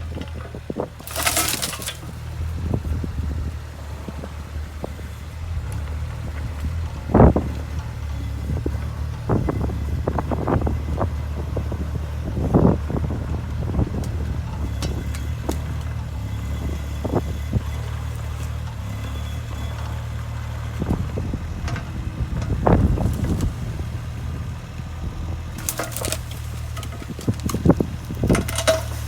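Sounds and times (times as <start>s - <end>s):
digging clunks and knocks: 0.0s - 2.8s, 13.9s - 20.0s, 25.4s - 29.0s
diesel engine running: 0.0s - 29.0s.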